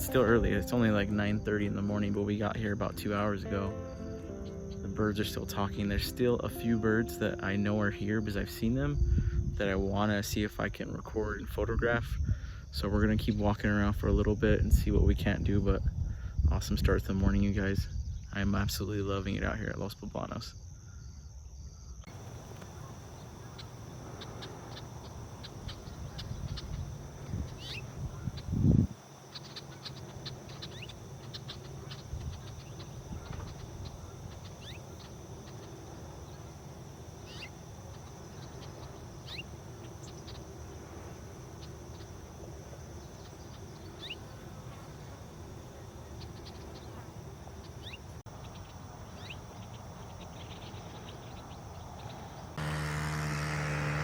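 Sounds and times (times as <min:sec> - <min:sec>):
insect drone: 0:00.0 - 0:54.0
birds chirping: 0:22.1 - 0:54.0.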